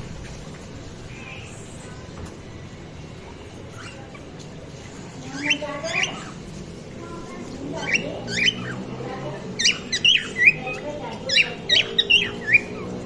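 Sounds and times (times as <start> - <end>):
cockatiels chirping: 3.6 - 4.5, 5.2 - 6.6, 7.4 - 13.0.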